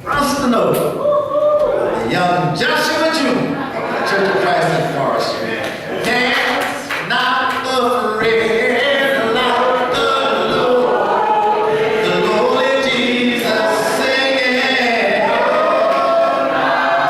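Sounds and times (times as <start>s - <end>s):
congregation singing a cappella: 5.9s - 17.0s.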